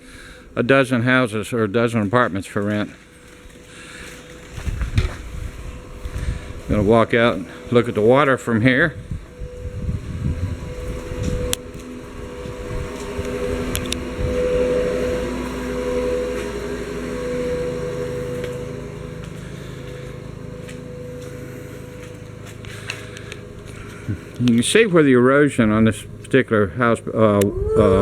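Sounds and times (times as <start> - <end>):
engine droning: 0.0 - 28.0
low rumble: 4.4 - 16.3, 25.5 - 28.0.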